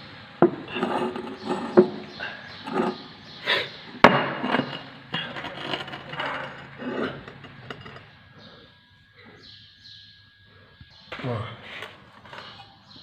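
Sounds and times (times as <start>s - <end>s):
metal tools clinking and scraping: 0.7s - 3.1s, 4.3s - 8.6s, 11.8s - 13.0s.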